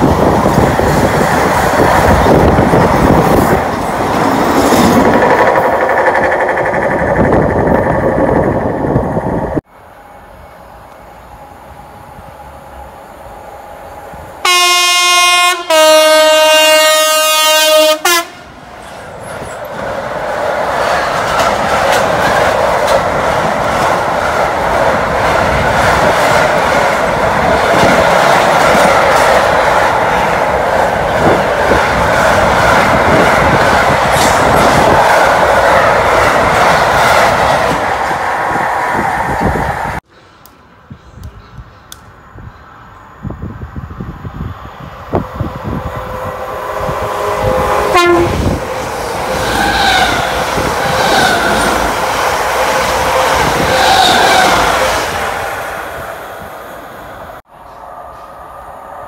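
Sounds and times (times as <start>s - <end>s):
wheels clacking over rails: 0.0s - 8.8s, 18.8s - 38.2s
two-tone train horn: 14.4s - 18.5s, 45.6s - 48.8s, 52.5s - 55.0s.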